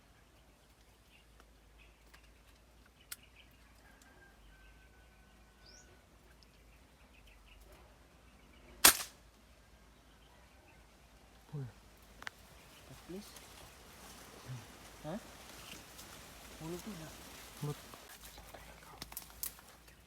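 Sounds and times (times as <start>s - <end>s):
faint bird chirps: 0.0s - 8.8s
air rifle shot: 8.8s - 9.2s.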